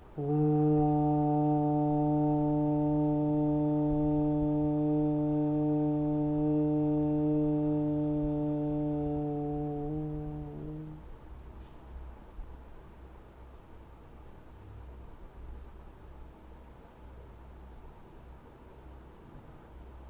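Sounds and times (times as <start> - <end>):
person chanting low tone: 0.0 - 11.1.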